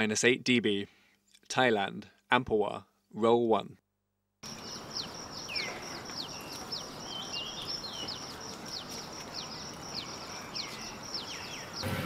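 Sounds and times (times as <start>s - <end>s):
birds chirping: 4.4s - 12.0s
outdoor background hiss: 4.4s - 12.0s.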